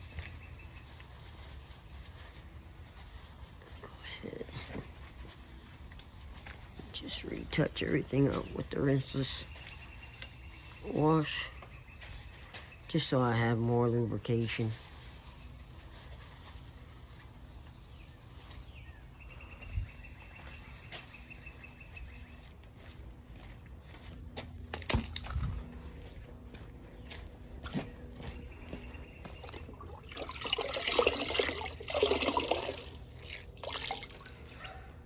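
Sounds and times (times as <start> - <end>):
water sloshing in a bucket: 29.4 - 34.7.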